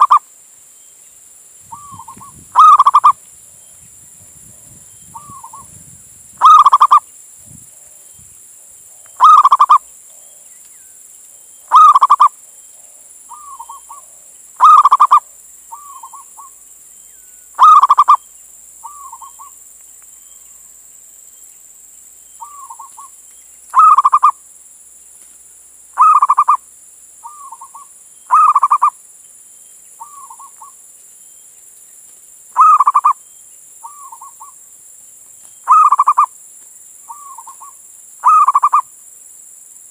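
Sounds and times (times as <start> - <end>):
dove cooing: 0.0 - 0.2, 1.7 - 3.2, 6.4 - 7.0, 9.2 - 9.8, 11.7 - 16.5, 17.6 - 18.2, 23.8 - 24.3, 26.0 - 26.6, 27.2 - 28.9, 32.6 - 33.2, 35.7 - 36.3, 37.1 - 38.9
faint high hiss: 0.0 - 39.9.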